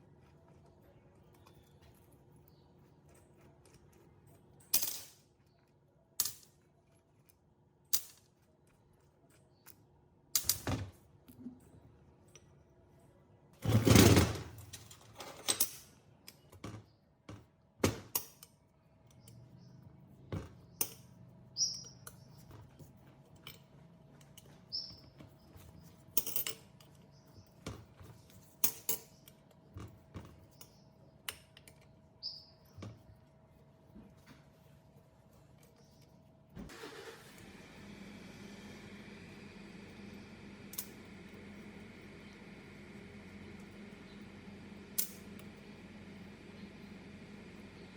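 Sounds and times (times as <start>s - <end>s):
metal tools clicking and tapping: 3.4s - 6.7s, 18.0s - 32.0s.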